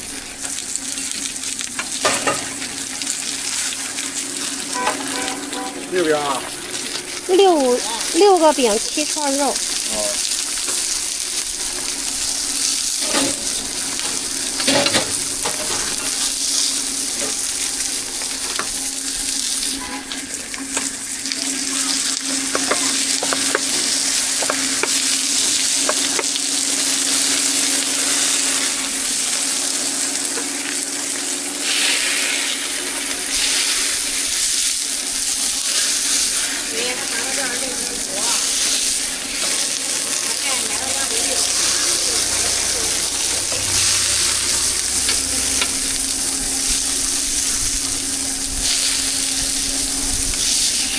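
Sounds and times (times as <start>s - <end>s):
food sizzling in hot oil: 0.0s - 50.9s
steady hum: 3.9s - 19.4s, 38.8s - 50.4s.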